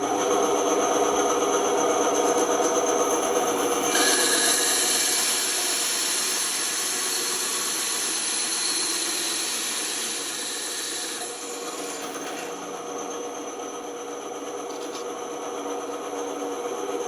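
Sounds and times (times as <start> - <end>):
power tool running with hiss: 2.8 - 13.2.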